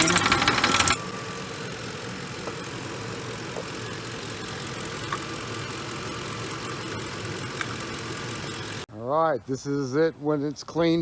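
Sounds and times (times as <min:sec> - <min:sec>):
timing chain rattle: 0:00.0 - 0:01.0
truck engine idling: 0:00.0 - 0:08.9.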